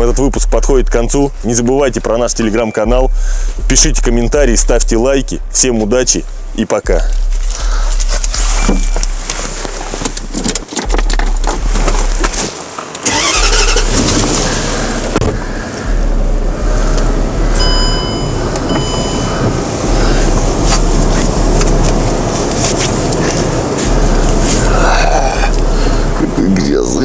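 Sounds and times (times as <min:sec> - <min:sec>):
car engine running: 0:00.0 - 0:27.0
high electronic beeps: 0:02.1 - 0:04.5, 0:08.2 - 0:09.7, 0:15.9 - 0:22.2.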